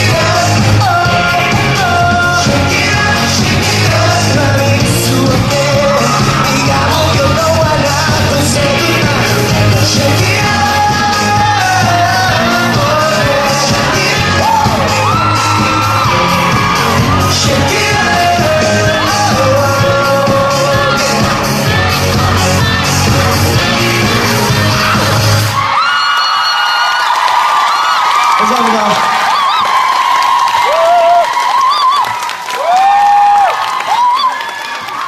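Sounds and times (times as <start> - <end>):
person singing long notes: 0.0 - 25.4
live pop band playing: 0.0 - 26.5.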